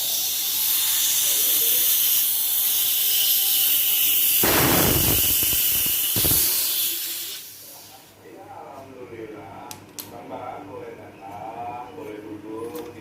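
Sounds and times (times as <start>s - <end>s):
refrigerant gas hissing: 0.0s - 8.1s.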